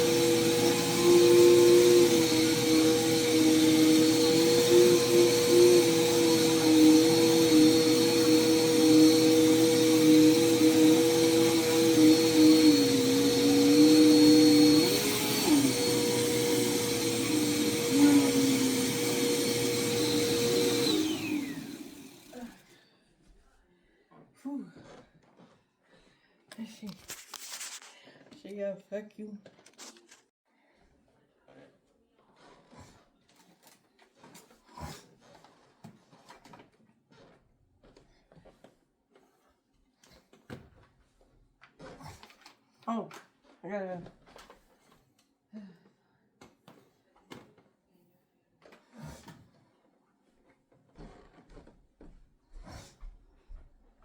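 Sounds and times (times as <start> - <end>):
vacuum cleaner running: 0.0 - 22.6.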